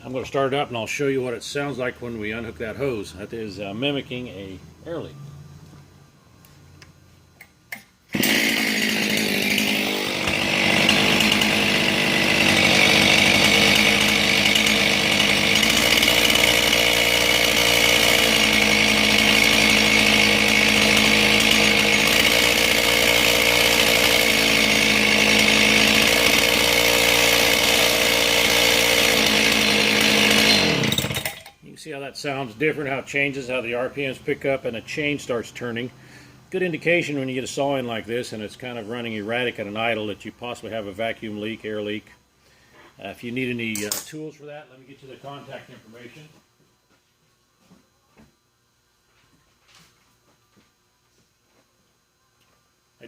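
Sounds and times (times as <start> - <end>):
chainsaw engine running: 8.1 - 31.5.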